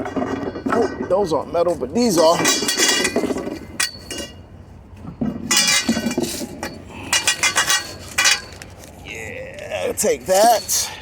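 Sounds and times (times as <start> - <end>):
scrap metal clinking: 2.0 - 4.4, 5.2 - 9.0.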